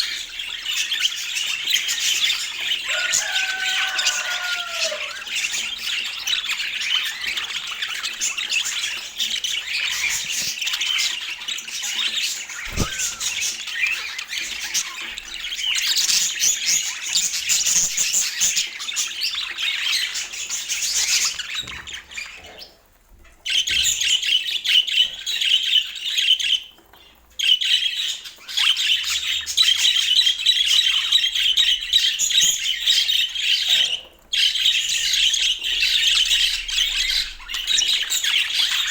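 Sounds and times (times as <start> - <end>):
budgerigars chattering: 4.1 - 16.0.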